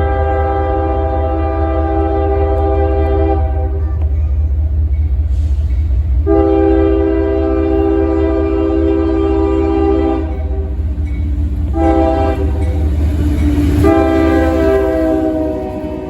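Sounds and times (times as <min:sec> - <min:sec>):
locomotive air horn blasts: 0:00.0 - 0:03.8, 0:06.2 - 0:10.8, 0:11.7 - 0:12.8, 0:13.8 - 0:16.0
low rumble of train: 0:00.0 - 0:16.0.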